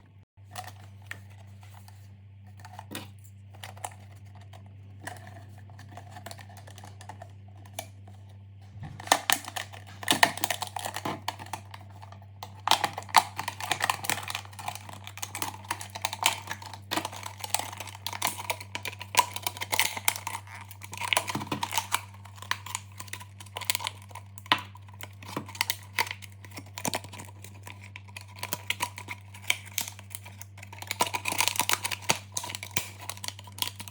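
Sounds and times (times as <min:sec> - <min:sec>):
steady low hum: 0:00.0 - 0:20.4
small objects clicking and tapping: 0:08.8 - 0:33.9.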